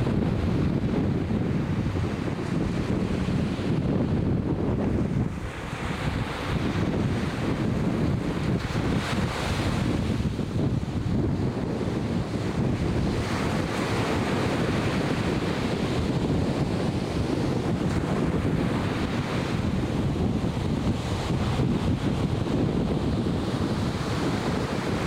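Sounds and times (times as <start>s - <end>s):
ocean surf washing: 0.0s - 25.0s
wind rumbling on microphone: 0.0s - 25.0s.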